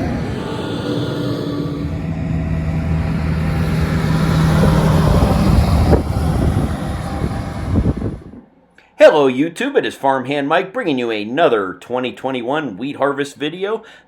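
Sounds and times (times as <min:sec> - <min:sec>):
diesel machinery engine hum: 0:00.0 - 0:08.4.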